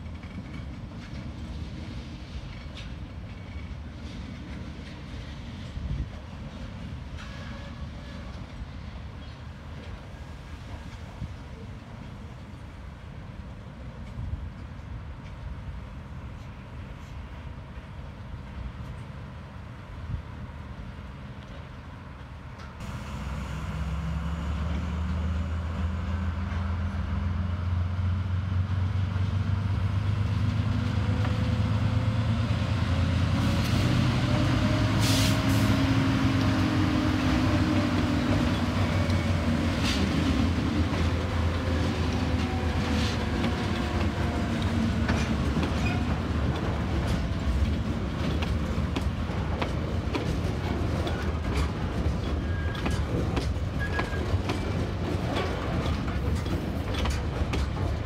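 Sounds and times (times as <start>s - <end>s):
diesel locomotive engine drone: 0.0s - 58.0s
wheels clicking over rail joints: 37.7s - 58.0s.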